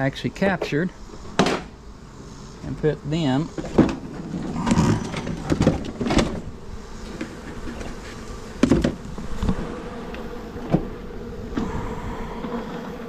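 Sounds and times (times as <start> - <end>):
honey bees buzzing: 0.0 - 13.0
knocks and thumps on hive box: 1.4 - 1.7, 3.6 - 6.5, 7.1 - 9.7, 10.6 - 11.7.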